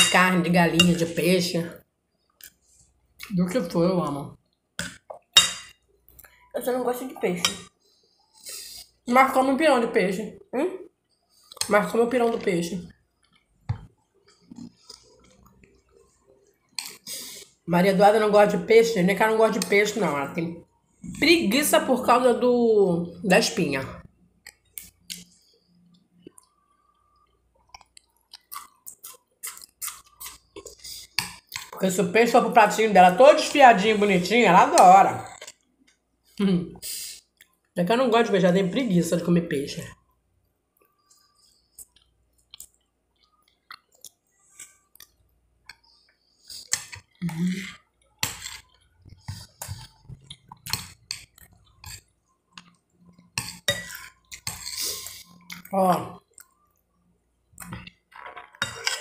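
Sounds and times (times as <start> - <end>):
person chewing food: 12.9 - 17.6, 24.4 - 31.8, 40.6 - 59.0
metal spoon clinking on plate: 58.6 - 59.0.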